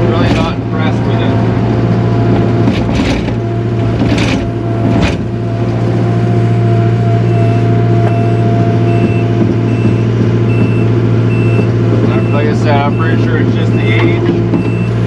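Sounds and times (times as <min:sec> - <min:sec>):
diesel engine running: 0:00.0 - 0:15.0
backup alarm beeping: 0:06.6 - 0:15.0.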